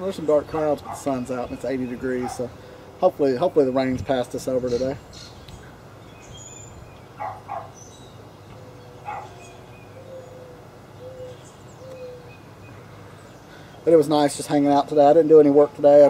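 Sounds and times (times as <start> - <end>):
low cooing bird call: 4.7 - 13.8.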